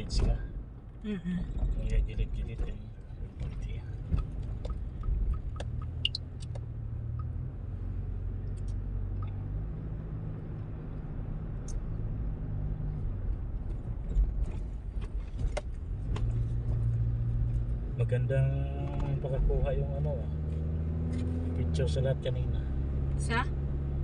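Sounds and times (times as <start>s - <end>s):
car engine drone: 0.0s - 24.0s
road noise: 0.0s - 24.0s
light clicks and ticks: 3.4s - 7.3s.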